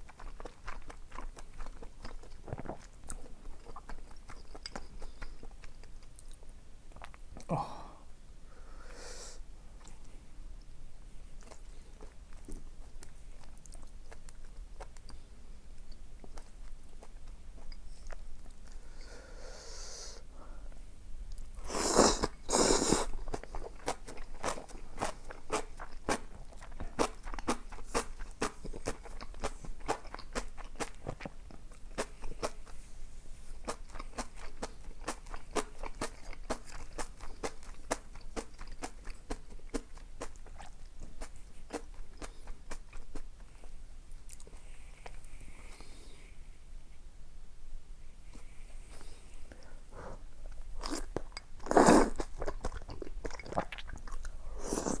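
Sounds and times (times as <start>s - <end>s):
chewing with mouth clicks: 0.0s - 7.5s, 11.4s - 18.8s, 21.3s - 32.8s, 33.6s - 45.9s, 50.4s - 55.0s.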